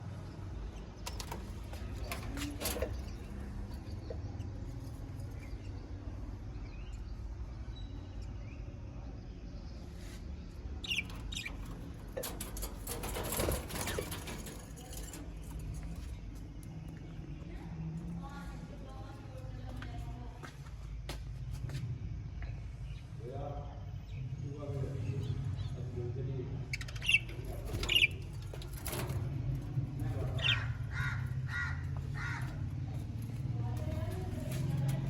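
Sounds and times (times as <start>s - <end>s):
parrot rustling and scratching: 10.8s - 16.5s
wing flutter: 10.9s - 16.2s.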